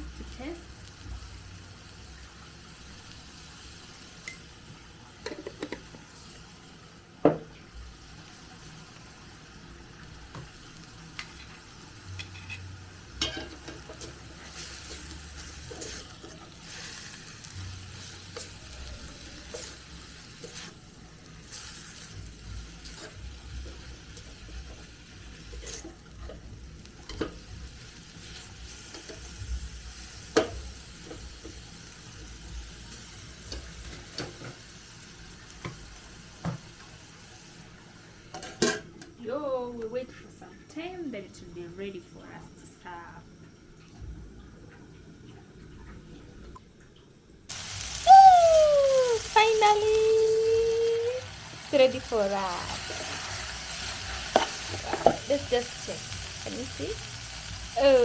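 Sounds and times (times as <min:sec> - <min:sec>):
faint sizzle: 0:00.0 - 0:58.0
spoon stirring greens in pot: 0:12.2 - 0:18.8, 0:19.4 - 0:22.1, 0:22.7 - 0:26.5.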